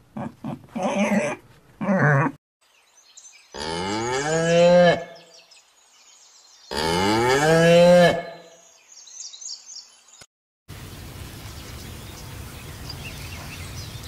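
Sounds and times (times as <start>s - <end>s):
cow mooing: 3.6s - 5.2s, 6.7s - 8.5s.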